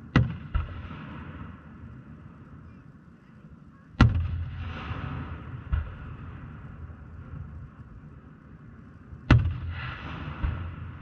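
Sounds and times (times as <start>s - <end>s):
crackling hiss: 0.0s - 11.0s
firework shell burst rumble: 9.2s - 11.0s.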